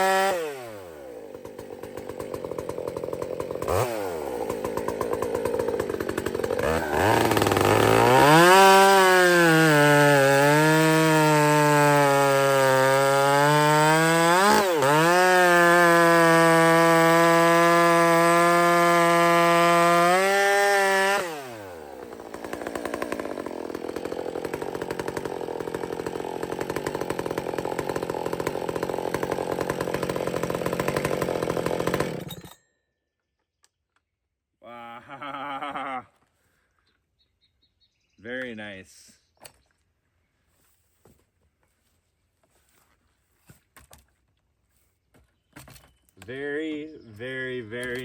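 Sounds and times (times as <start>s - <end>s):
chainsaw at full throttle: 0.0s - 32.5s, 35.1s - 36.0s.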